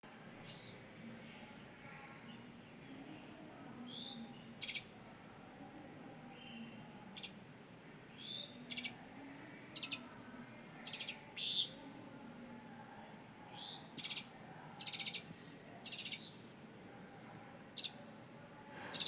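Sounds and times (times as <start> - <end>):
birds calling: 3.8 - 4.9, 8.1 - 9.0, 9.7 - 10.1, 13.4 - 16.4.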